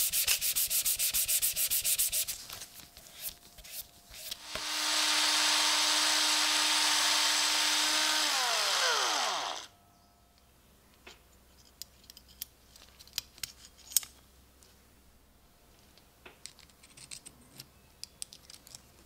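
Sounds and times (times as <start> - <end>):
power tool whirring and spinning down: 4.4 - 9.7.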